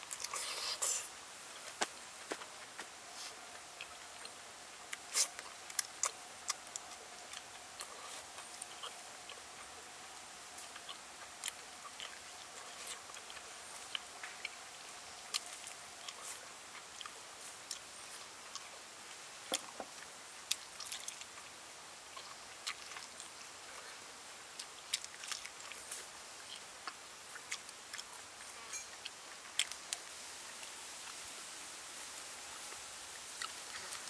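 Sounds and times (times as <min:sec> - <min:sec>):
person chewing crispy chicken: 0:03.2 - 0:09.7, 0:10.6 - 0:14.6, 0:19.8 - 0:21.4, 0:22.2 - 0:23.4, 0:24.5 - 0:30.0.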